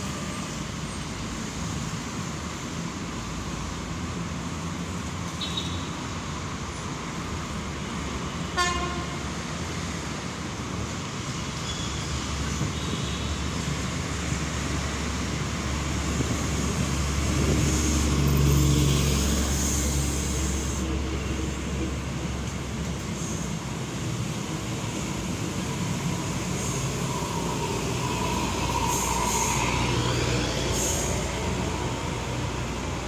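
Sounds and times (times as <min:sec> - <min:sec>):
train engine and wheel rumble: 0:00.0 - 0:33.0
train horn toot: 0:08.6 - 0:09.2.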